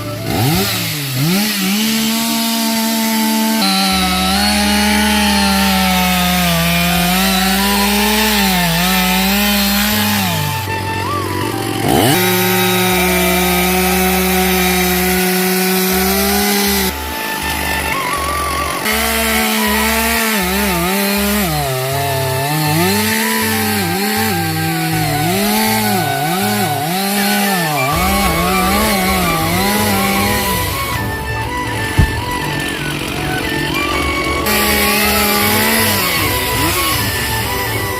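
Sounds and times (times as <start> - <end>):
low pulsing: 0.0 - 22.8, 23.8 - 37.9
chainsaw cutting into tree: 0.0 - 37.9.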